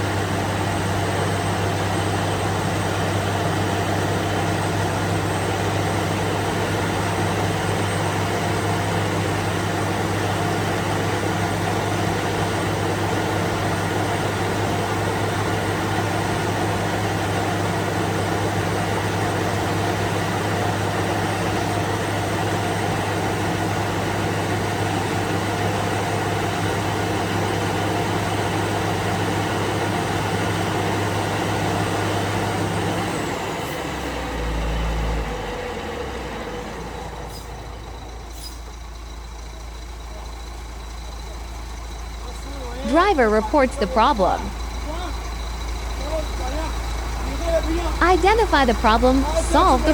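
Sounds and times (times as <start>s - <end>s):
truck engine humming: 42.8s - 49.9s.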